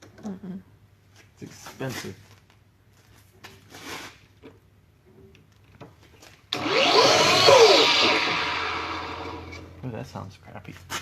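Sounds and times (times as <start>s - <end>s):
power tool motor whining: 6.5s - 9.8s.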